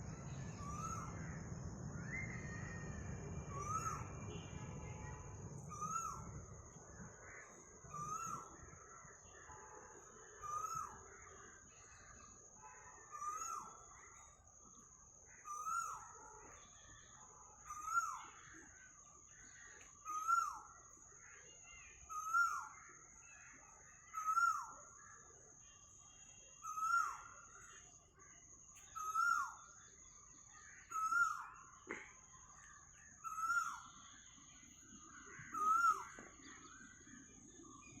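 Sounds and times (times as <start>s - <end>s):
faint high-pitched whine: 0.0s - 38.0s
cuckoo calling: 28.8s - 29.8s, 33.2s - 38.0s.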